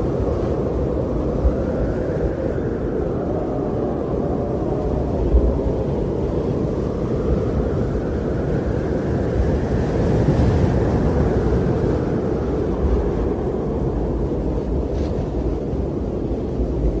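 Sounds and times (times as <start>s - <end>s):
deep wind rumble: 0.0s - 17.0s.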